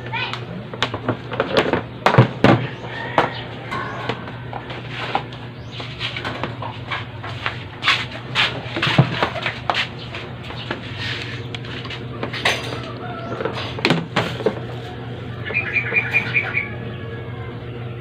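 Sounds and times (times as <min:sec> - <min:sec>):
steady low hum: 0:00.0 - 0:18.0
scraping and tapping strokes: 0:03.8 - 0:15.0.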